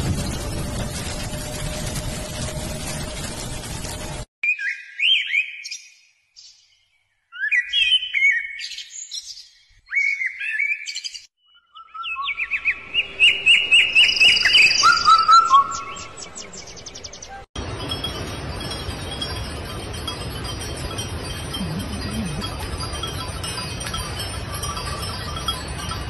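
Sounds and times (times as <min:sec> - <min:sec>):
songbird chirping: 0:04.4 - 0:17.5.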